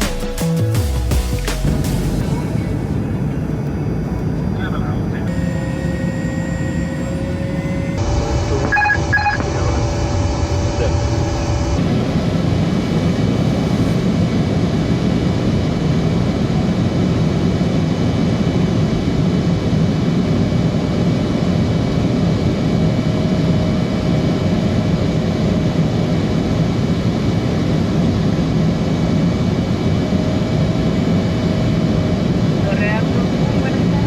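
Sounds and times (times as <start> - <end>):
jet airliner cabin noise: 1.6 - 34.0
faint steady tones: 2.2 - 14.0.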